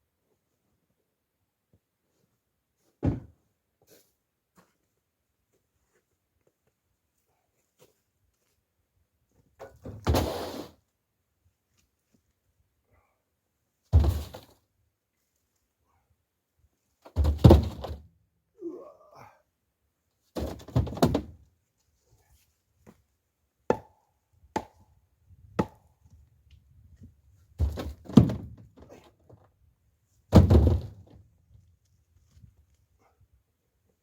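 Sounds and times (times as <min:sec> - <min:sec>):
heavy wooden thunks of logs: 0:03.0 - 0:03.4, 0:13.9 - 0:14.5, 0:17.1 - 0:18.1, 0:20.4 - 0:21.4, 0:27.6 - 0:29.1, 0:30.3 - 0:31.2.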